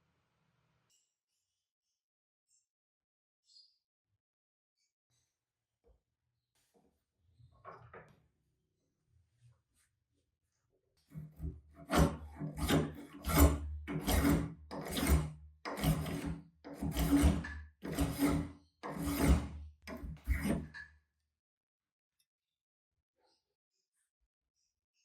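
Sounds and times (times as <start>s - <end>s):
hand plane shaving wood: 11.2s - 20.8s.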